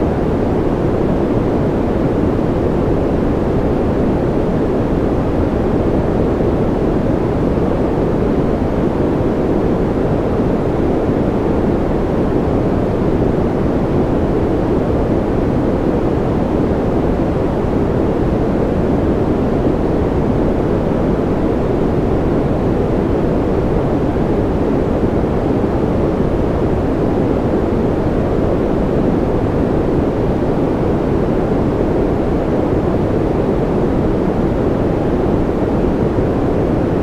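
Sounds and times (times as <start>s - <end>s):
deep dull white noise hiss: 0.0s - 37.0s.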